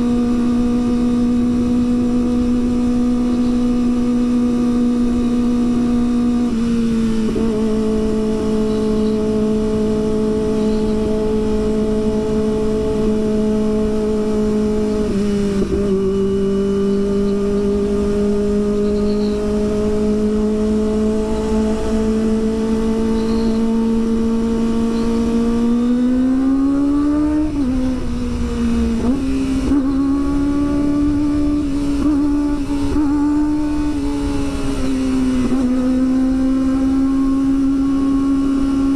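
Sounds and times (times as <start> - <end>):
motorcycle engine at high revs: 0.0 - 38.9.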